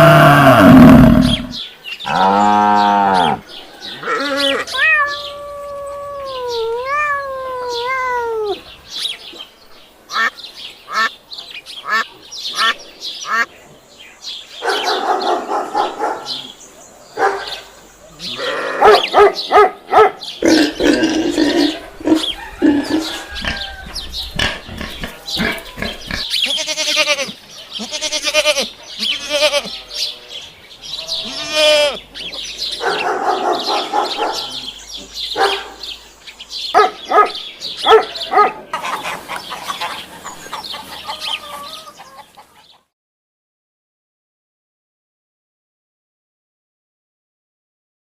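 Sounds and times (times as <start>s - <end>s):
farm animal calls: 0.0s - 8.6s, 10.1s - 10.3s, 10.9s - 11.2s, 11.8s - 13.5s, 17.2s - 35.8s, 36.7s - 42.9s.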